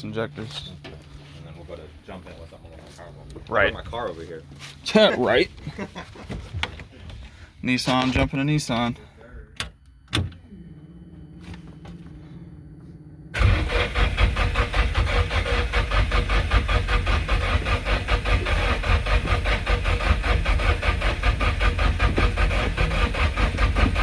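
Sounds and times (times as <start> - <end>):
engine cranking without starting: 13.3 - 24.0.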